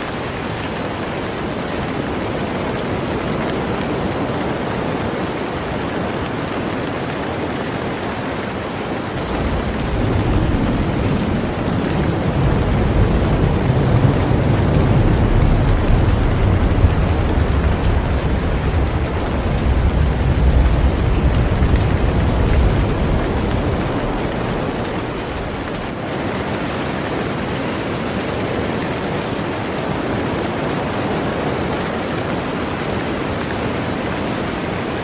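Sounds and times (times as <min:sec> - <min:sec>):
heavy rain on a boat: 0:00.0 - 0:35.0
deep low rumble: 0:09.2 - 0:26.0.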